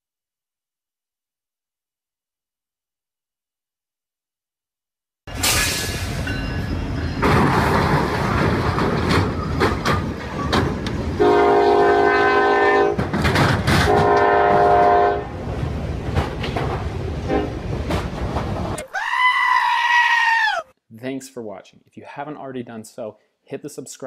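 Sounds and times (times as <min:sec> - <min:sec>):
train running: 0:05.3 - 0:18.8
train horn blasts: 0:11.2 - 0:13.1, 0:13.8 - 0:15.3, 0:17.2 - 0:17.6.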